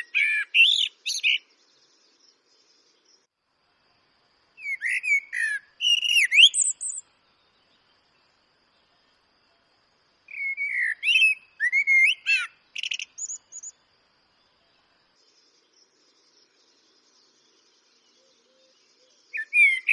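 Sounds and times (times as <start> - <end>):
blackbird singing: 0.0 - 3.2, 4.6 - 7.9, 10.3 - 13.8, 14.7 - 19.9.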